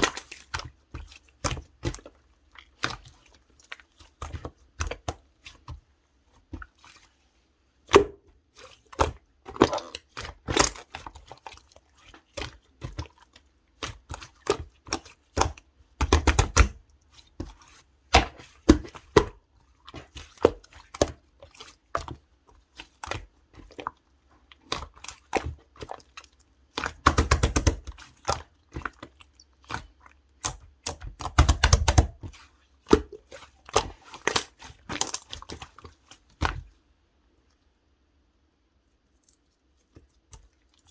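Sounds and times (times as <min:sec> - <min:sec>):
slime squished by hand: 0:26.8 - 0:35.8.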